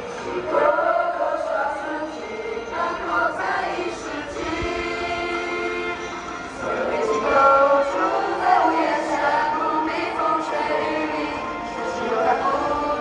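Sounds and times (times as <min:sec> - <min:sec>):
choir singing: 0:00.0 - 0:13.0.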